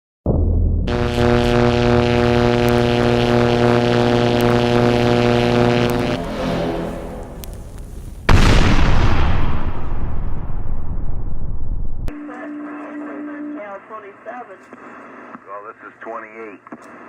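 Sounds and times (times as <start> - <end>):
steady radio buzz: 0.9 - 7.8, 12.1 - 17.0
radio static: 0.9 - 7.9, 12.1 - 17.0.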